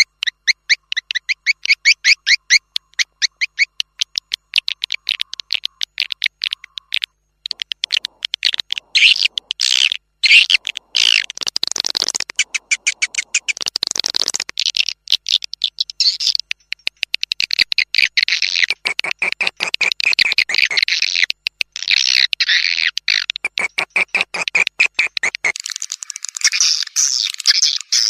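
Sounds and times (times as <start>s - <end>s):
swiftlet twittering calls: 0.0s - 21.2s.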